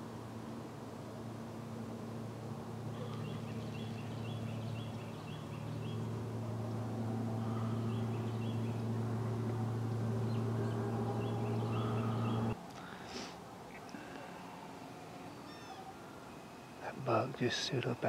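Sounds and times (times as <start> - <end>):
low hum: 0.0 - 18.0
small bird chirping: 2.9 - 6.2, 7.4 - 8.9, 9.9 - 12.6.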